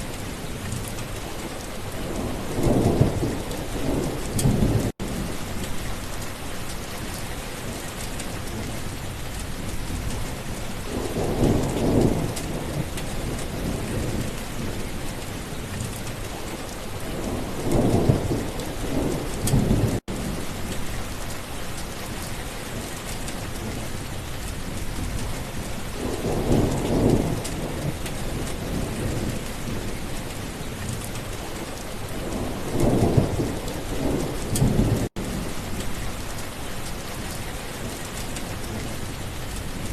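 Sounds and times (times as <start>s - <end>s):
steady rain: 0.0s - 39.9s
rolling thunder: 1.9s - 5.7s, 10.8s - 15.0s, 17.0s - 20.8s, 25.9s - 30.0s, 31.5s - 36.3s.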